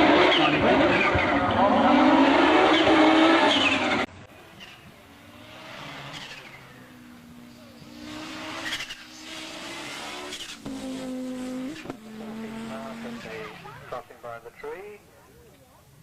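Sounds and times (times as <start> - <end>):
turbocharged engine at full throttle: 0.0 - 14.6.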